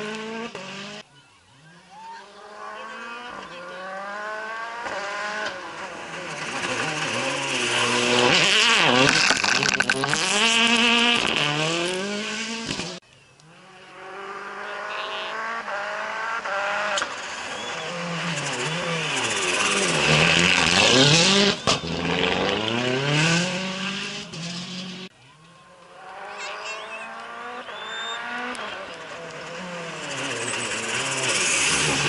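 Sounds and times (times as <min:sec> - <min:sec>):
rally car engines revving: 0:00.0 - 0:32.0
tyre squeal: 0:26.3 - 0:28.8.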